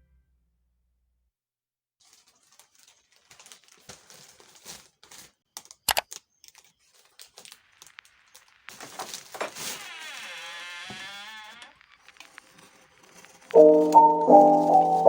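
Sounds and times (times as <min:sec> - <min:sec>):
light rustling and crinkling: 0:02.0 - 0:10.4, 0:11.6 - 0:15.0
sharp clicks: 0:05.8 - 0:06.2.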